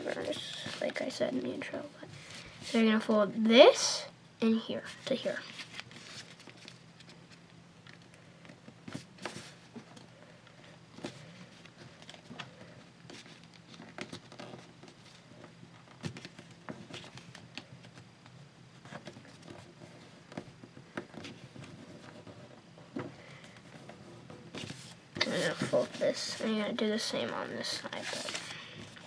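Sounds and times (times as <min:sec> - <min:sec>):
steady low hum: 0:00.0 - 0:29.0
paper crinkling and tapping: 0:11.0 - 0:26.6.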